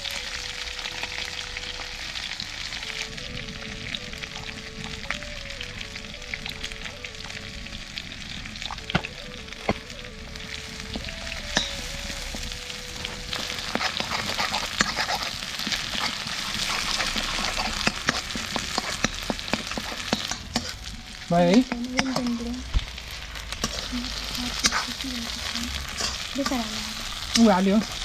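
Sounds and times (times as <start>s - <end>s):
chicken sizzling in a wok: 0.0s - 28.0s
metal spoon scraping a pan: 13.3s - 22.4s, 23.5s - 28.0s.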